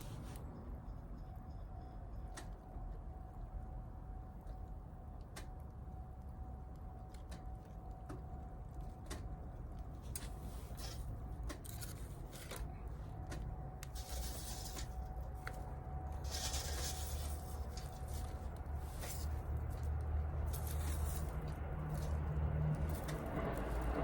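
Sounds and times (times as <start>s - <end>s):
low rumble: 13.5s - 24.0s.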